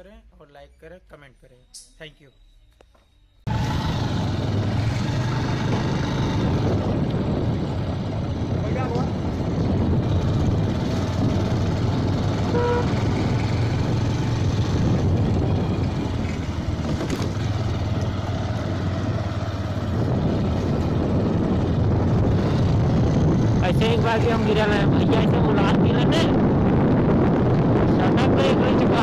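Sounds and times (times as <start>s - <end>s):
motorcycle engine running: 3.5s - 29.0s
horn tooting: 12.3s - 13.3s.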